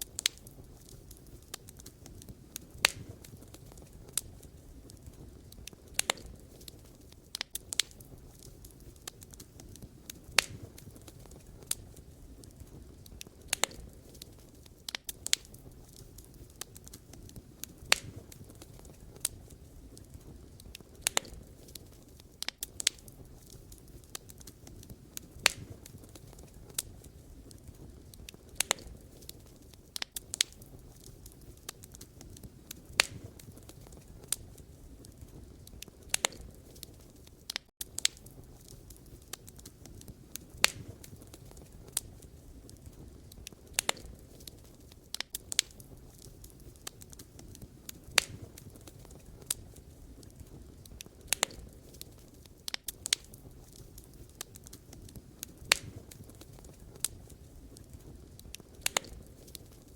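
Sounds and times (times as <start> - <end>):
firewood popping and snapping: 0.0 - 59.9
low rumble of flames: 0.0 - 59.9.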